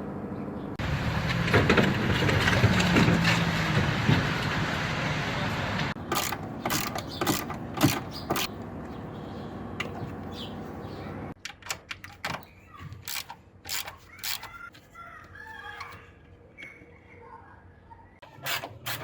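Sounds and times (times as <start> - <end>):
sharp knocks and clicks: 6.0 - 8.5.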